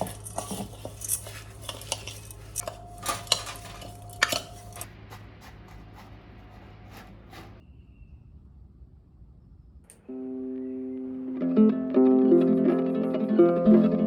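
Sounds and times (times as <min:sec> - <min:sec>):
dishes and cutlery clinking: 0:00.0 - 0:04.9.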